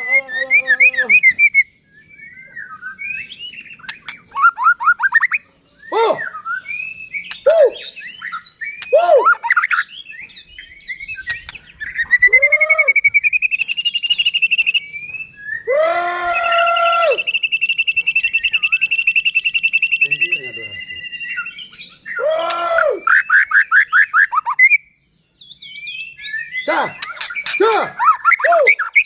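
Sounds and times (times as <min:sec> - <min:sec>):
songbird singing whistled phrases: 0:00.0 - 0:15.7, 0:16.4 - 0:29.0
bird rapid trill: 0:03.1 - 0:05.4, 0:26.0 - 0:29.0.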